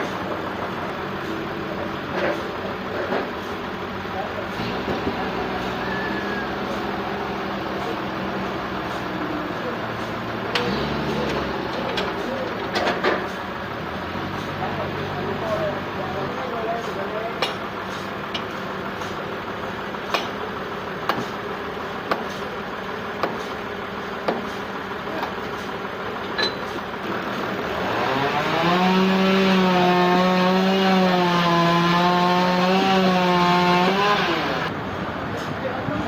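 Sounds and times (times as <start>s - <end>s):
sawmill machinery humming: 0.0s - 36.0s
saw motor cutting: 27.2s - 34.7s.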